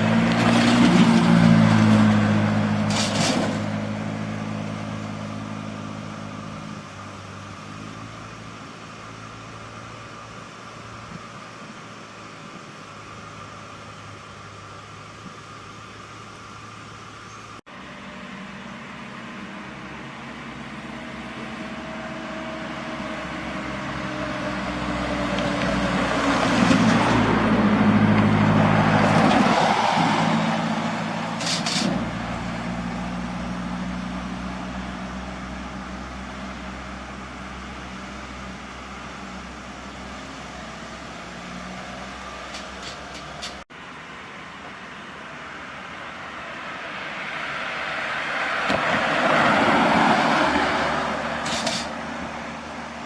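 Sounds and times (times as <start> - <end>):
truck diesel engine passing: 0.0 - 53.0.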